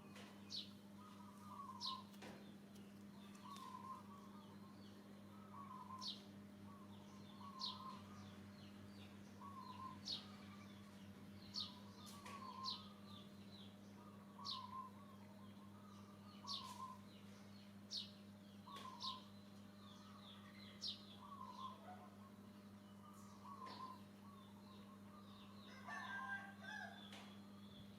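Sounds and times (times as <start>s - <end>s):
steady low hum: 0.0s - 27.9s
soft bird warbling: 3.3s - 4.4s.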